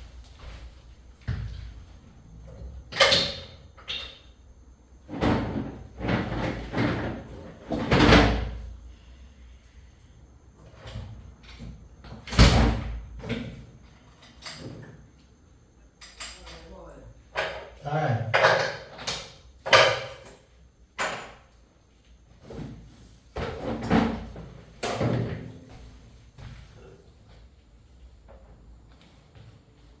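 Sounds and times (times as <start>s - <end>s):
tools and engine parts clunking: 16.0s - 16.7s.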